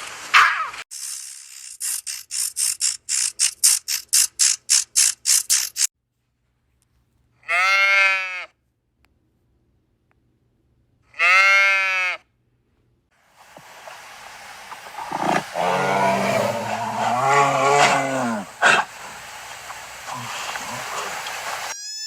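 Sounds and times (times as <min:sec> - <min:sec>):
animal bleat: 0:07.4 - 0:08.6, 0:11.1 - 0:12.3
rapid rasping animal pulses: 0:13.4 - 0:21.7.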